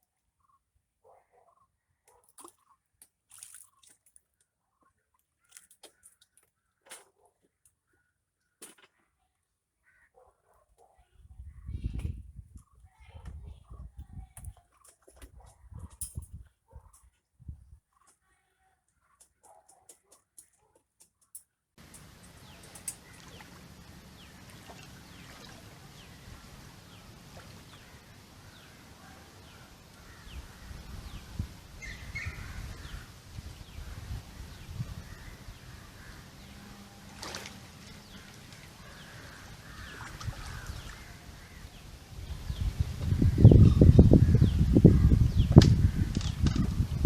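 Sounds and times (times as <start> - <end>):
birds chirping: 4.7 - 47.0
low river rumble: 21.8 - 47.0.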